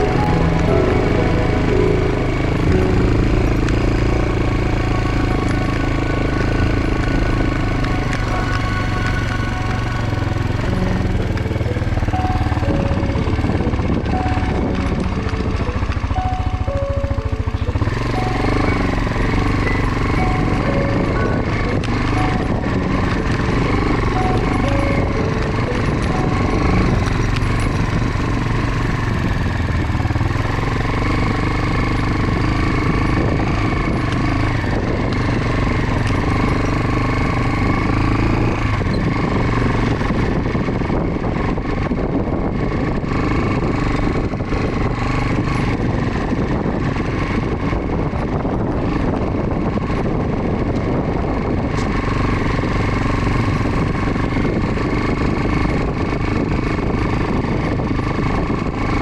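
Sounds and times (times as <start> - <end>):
dense rumble of noise: 0.0 - 59.0
motorcycle engine running: 0.0 - 59.0.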